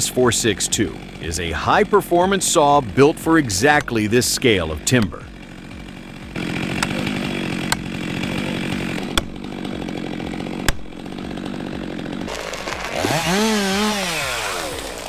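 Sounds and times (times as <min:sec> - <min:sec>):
chainsaw running at high speed: 0:00.0 - 0:15.0
pitched engine sound wavering: 0:00.0 - 0:15.0.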